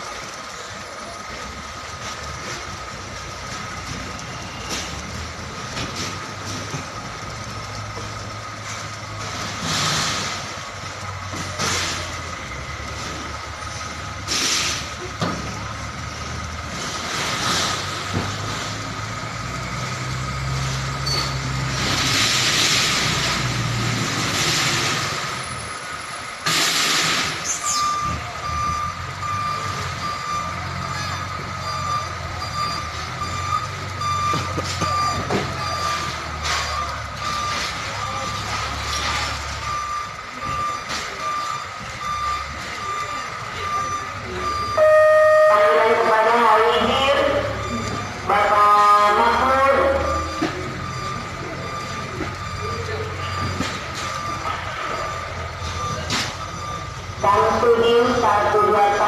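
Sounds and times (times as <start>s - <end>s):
truck diesel engine running: 0.0s - 59.0s
reversing alarm beeping: 10.8s - 22.1s, 26.5s - 59.0s.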